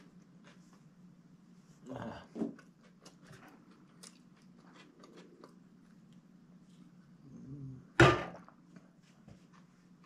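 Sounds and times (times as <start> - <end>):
steady low hum: 0.0 - 10.0
chewing and mouth clicks: 2.7 - 6.3.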